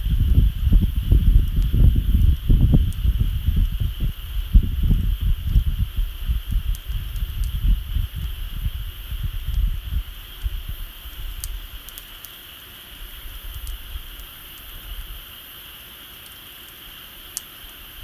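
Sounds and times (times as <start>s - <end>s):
wind buffeting microphone: 0.0s - 12.0s
bonfire crackling and popping: 0.0s - 18.0s.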